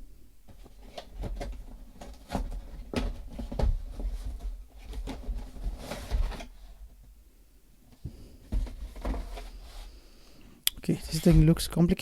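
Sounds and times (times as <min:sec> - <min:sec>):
box and packaging being handled: 0:00.5 - 0:07.1, 0:08.0 - 0:10.0, 0:11.0 - 0:11.7.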